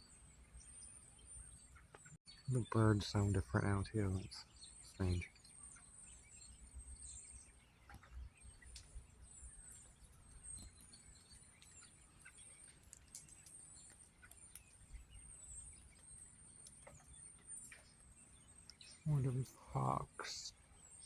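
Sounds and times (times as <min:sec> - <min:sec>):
birds calling high and thin: 0:00.0 - 0:21.0
light ticks: 0:07.9 - 0:09.0, 0:10.5 - 0:14.8, 0:15.9 - 0:18.0, 0:18.6 - 0:18.9.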